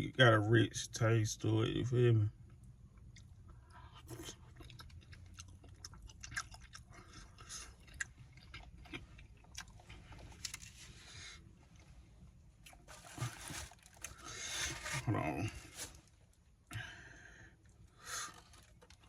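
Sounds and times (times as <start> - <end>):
person chewing: 3.0 - 10.9.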